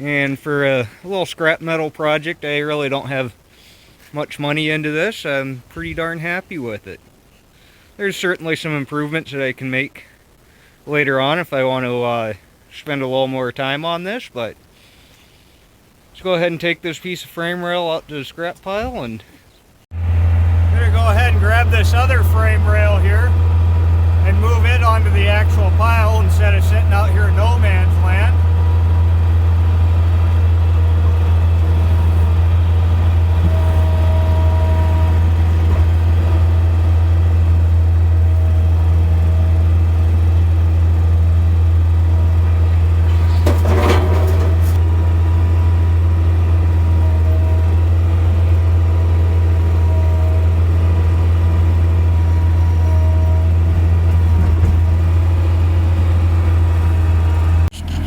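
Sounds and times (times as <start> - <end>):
skid steer engine running: 19.9 - 58.0
brief clatter: 43.1 - 44.8.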